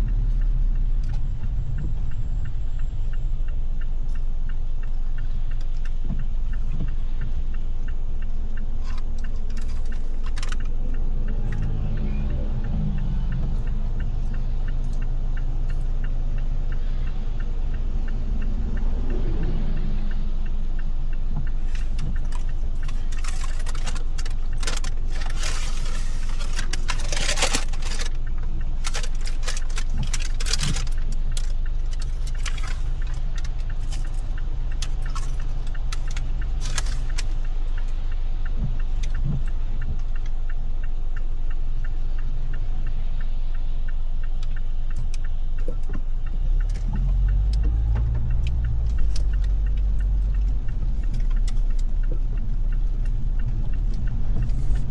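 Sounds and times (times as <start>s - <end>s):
car engine and tyres rumbling: 0.0s - 54.9s
raindrops striking car: 20.7s - 40.6s.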